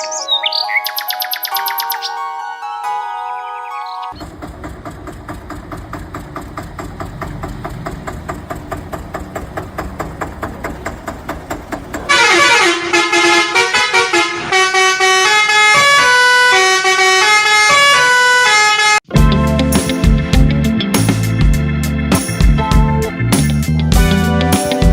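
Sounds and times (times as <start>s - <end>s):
pulsing vehicle engine: 4.1s - 14.5s
horn playing a tune: 12.1s - 19.8s.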